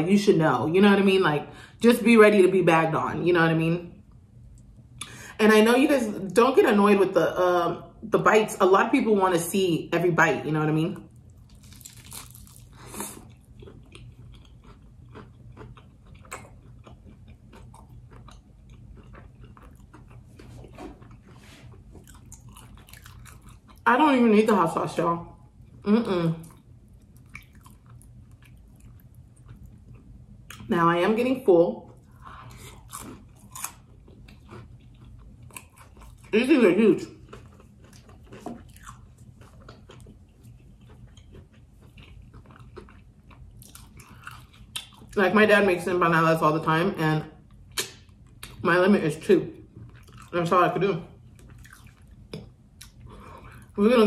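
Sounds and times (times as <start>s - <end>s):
faint low hum: 0.0s - 54.0s
chewing crunches: 11.2s - 23.8s, 26.4s - 30.7s, 31.8s - 36.4s, 37.0s - 45.2s, 49.7s - 50.4s, 51.2s - 53.8s.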